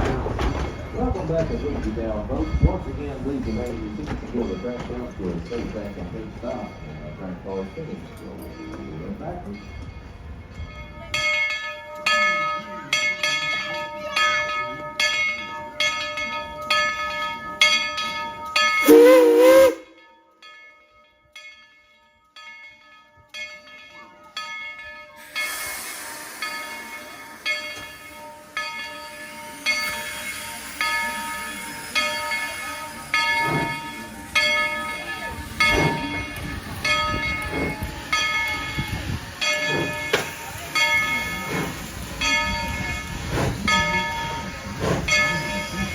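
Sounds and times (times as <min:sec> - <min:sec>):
locomotive bell ringing: 0:00.0 - 0:45.9
steam whistle blast: 0:18.8 - 0:20.0
steam hissing: 0:25.2 - 0:45.9.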